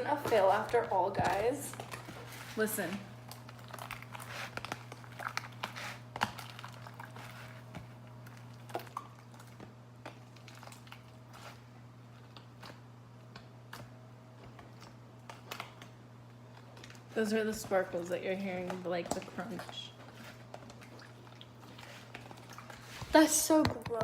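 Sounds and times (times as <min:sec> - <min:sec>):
slime squeezed with crunching crackles: 0:03.2 - 0:12.8.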